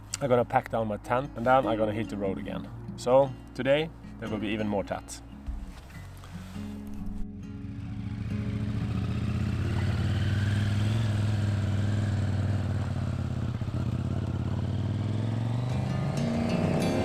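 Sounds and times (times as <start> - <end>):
motorcycle engine revving: 6.8 - 17.0.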